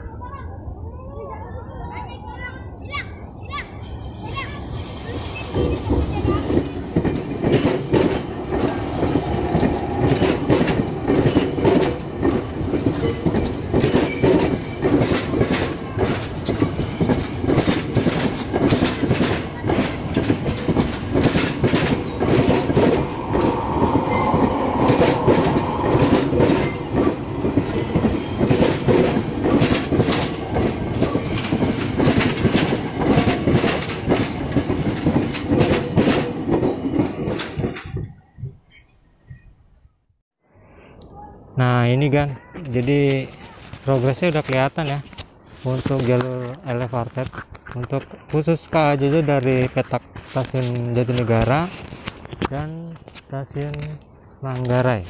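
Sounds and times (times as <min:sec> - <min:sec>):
train wheel squeal: 0:03.8 - 0:06.4, 0:21.8 - 0:28.6, 0:38.6 - 0:39.5
train wheels clattering: 0:03.8 - 0:39.0.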